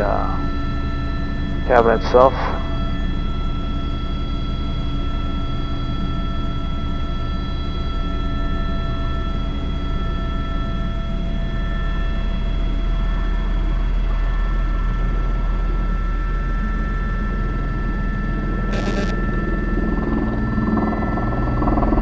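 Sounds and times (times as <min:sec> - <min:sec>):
high steady whine tones: 0:00.0 - 0:09.5, 0:18.7 - 0:19.6
helicopter rotor and turbine noise: 0:00.0 - 0:22.0.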